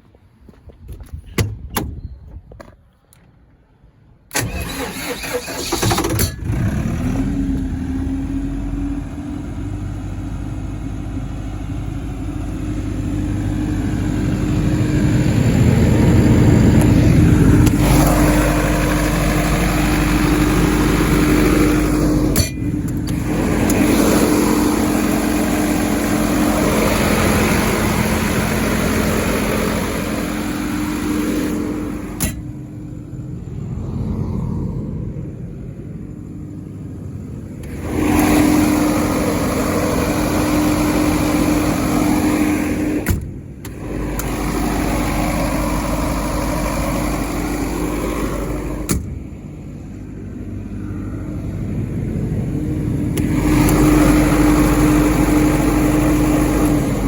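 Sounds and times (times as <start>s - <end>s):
starter motor cranking: 4.3s - 7.8s, 15.6s - 32.4s, 37.6s - 49.0s, 53.1s - 57.0s
diesel engine running: 4.3s - 57.0s.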